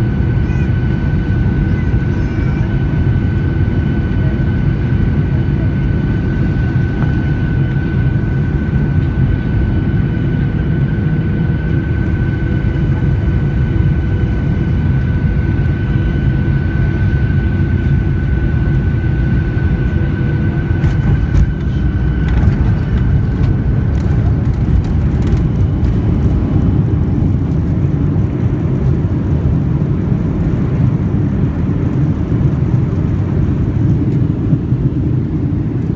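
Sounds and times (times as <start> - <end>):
airliner landing rumble: 0.0 - 35.9.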